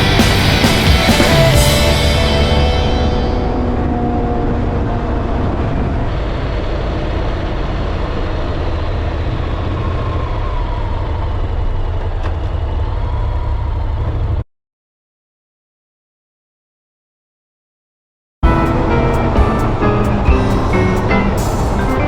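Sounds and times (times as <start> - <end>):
motorcycle engine drone: 0.0 - 14.4
wind and road noise: 3.1 - 14.4.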